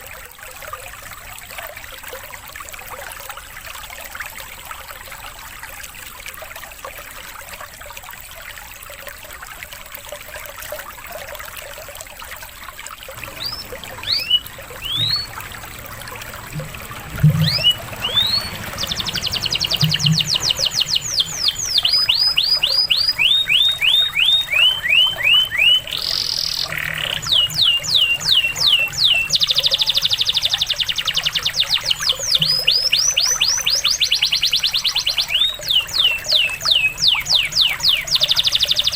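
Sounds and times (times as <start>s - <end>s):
water trickling: 0.0s - 38.9s
canary singing: 13.2s - 38.9s.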